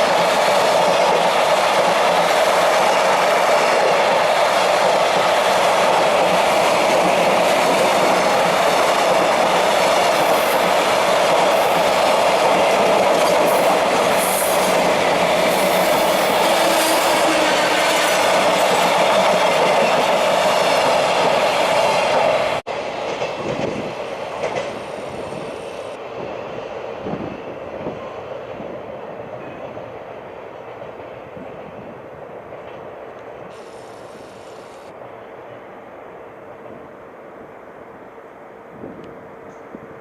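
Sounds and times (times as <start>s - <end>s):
freight train clattering over rails: 0.0s - 30.0s.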